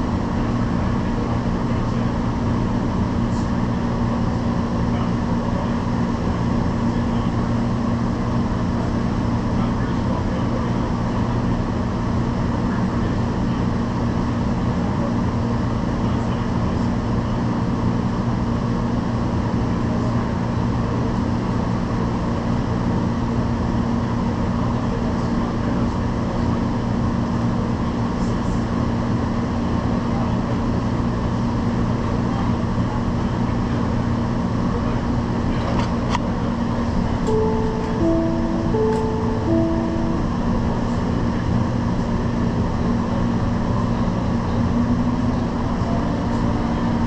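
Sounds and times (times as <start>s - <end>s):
train car interior hum: 0.0s - 16.4s, 34.6s - 47.0s.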